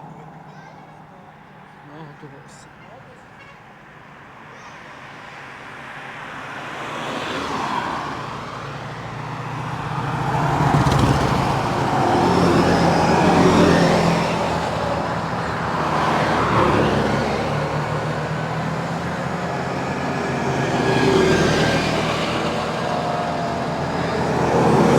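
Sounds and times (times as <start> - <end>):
large trucks driving past: 5.6 - 24.9.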